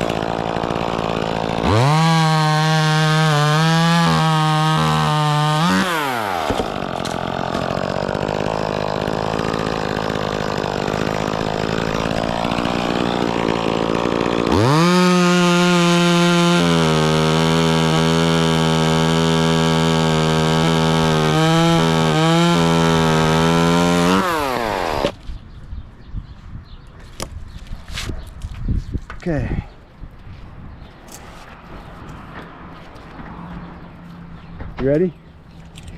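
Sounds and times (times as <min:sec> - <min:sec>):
chainsaw cutting wood: 0:00.0 - 0:25.2.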